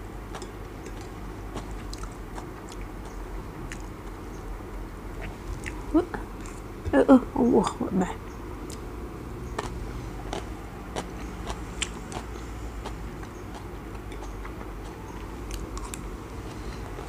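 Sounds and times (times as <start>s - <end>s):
person chewing noodles: 0.3s - 4.1s, 9.5s - 17.0s.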